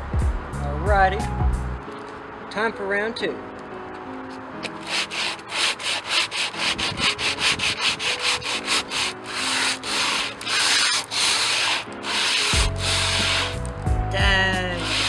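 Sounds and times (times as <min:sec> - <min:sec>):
sandpaper rubbing on wood: 0:04.8 - 0:13.7, 0:14.6 - 0:15.0.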